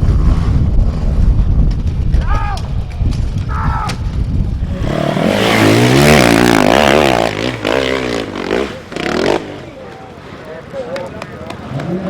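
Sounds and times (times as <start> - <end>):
dirt bike engine revving: 4.5 - 9.8.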